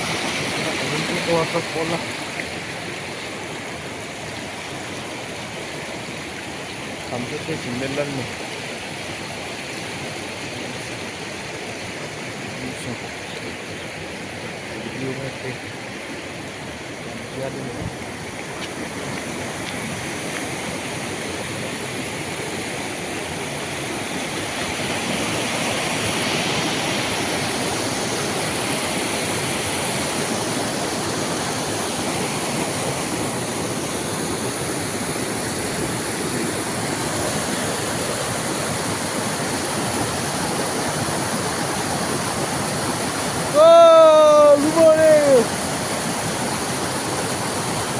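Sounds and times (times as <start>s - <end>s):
waterfall rushing water: 0.0s - 47.9s.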